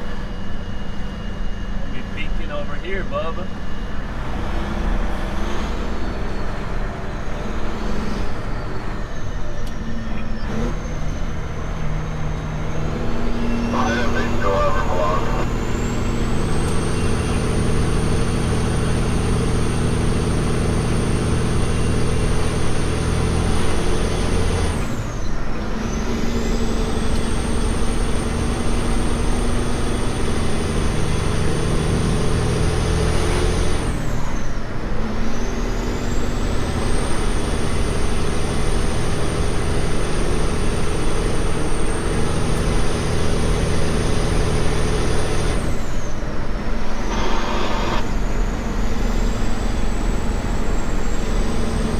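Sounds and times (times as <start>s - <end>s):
truck diesel engine under load: 0.0s - 51.9s
high whine: 13.2s - 18.6s, 46.7s - 51.9s.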